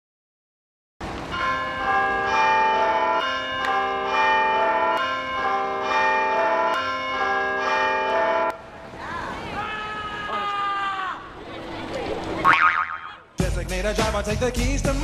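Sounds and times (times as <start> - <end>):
church bells ringing: 1.3 - 8.7.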